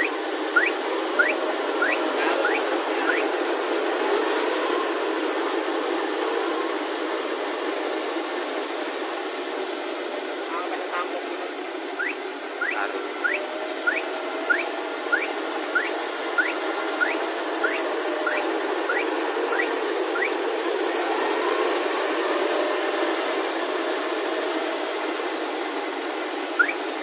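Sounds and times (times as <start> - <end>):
short rising chirps: 0.0 - 3.3, 12.0 - 20.4, 26.6 - 26.8
combine harvester running: 0.0 - 27.0.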